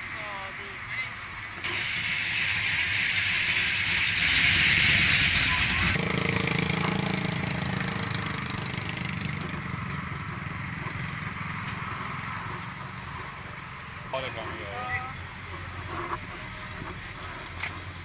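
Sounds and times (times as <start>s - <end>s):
loud rushing noise: 1.6s - 8.3s.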